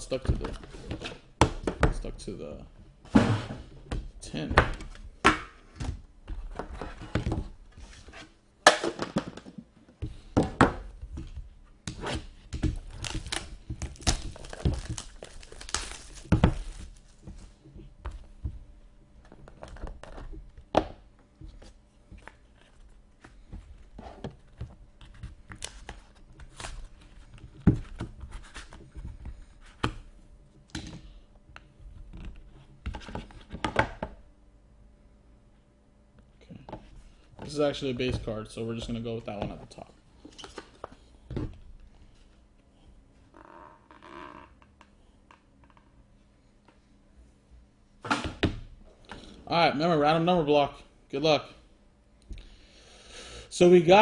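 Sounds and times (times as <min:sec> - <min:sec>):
packaging tearing and crinkling: 0:12.8 - 0:17.2.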